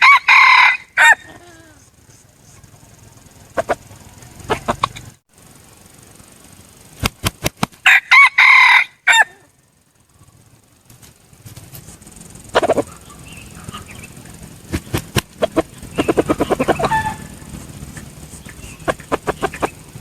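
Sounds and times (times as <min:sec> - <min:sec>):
rooster crowing: 0:00.0 - 0:01.8, 0:07.8 - 0:09.6, 0:15.5 - 0:17.6
sharp clicks: 0:06.9 - 0:07.8, 0:10.9 - 0:20.0.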